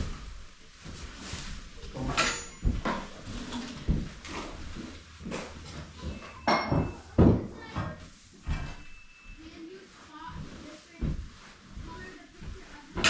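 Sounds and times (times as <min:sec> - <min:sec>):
knocks and clatter: 0:01.9 - 0:08.9.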